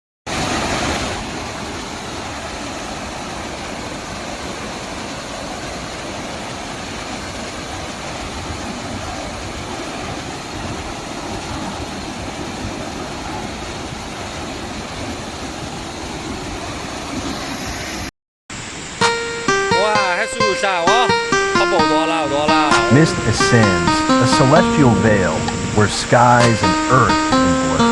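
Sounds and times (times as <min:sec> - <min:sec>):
waterfall roaring: 0:00.3 - 0:17.4.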